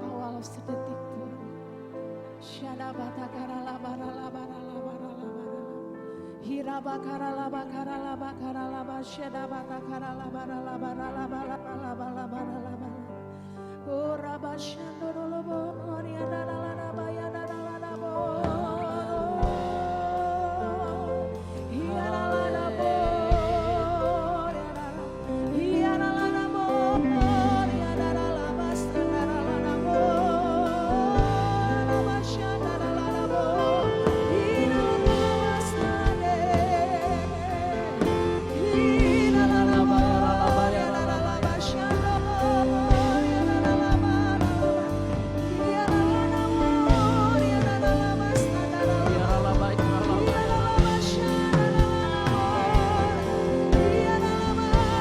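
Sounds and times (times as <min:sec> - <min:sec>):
person singing with vibrato: 0:00.0 - 0:55.0
slow worship music: 0:00.0 - 0:55.0
bass: 0:13.9 - 0:55.0
keyboard chords: 0:14.8 - 0:55.0.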